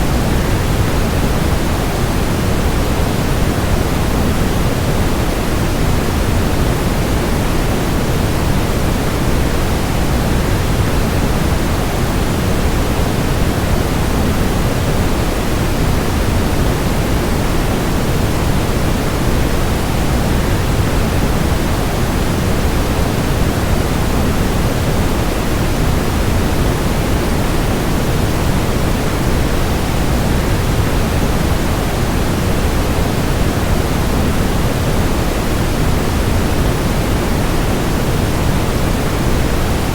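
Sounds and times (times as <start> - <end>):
white noise: 0.0 - 39.9.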